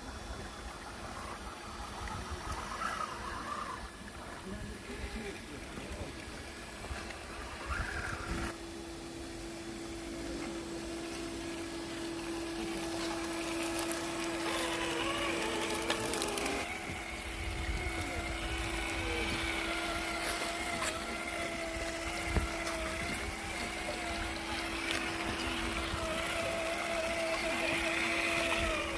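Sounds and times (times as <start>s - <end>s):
steady low hum: 0.0s - 28.9s
toy truck electric motor whining: 1.1s - 3.9s, 10.0s - 28.9s.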